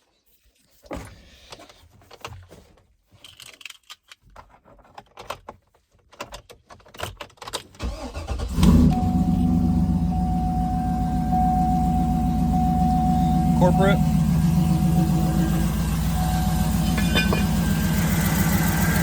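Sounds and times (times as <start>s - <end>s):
car engine starting and idling: 7.8s - 19.0s
steady high tone: 8.9s - 19.0s.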